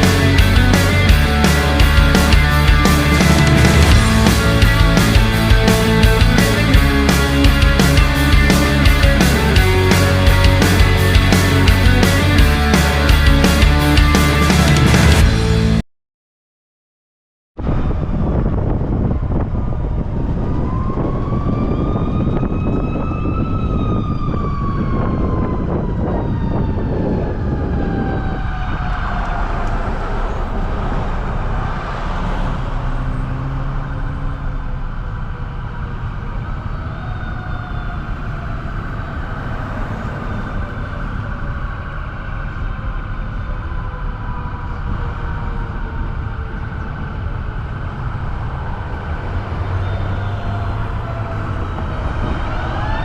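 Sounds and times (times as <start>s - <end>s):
truck engine and road noise: 0.0s - 15.8s, 17.6s - 53.0s
whine: 0.0s - 15.8s.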